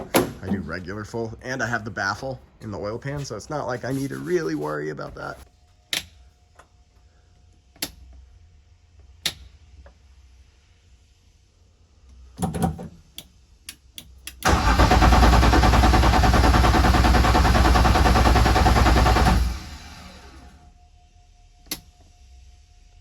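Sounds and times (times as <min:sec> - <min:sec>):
car engine cranking on starter: 0:14.4 - 0:20.6.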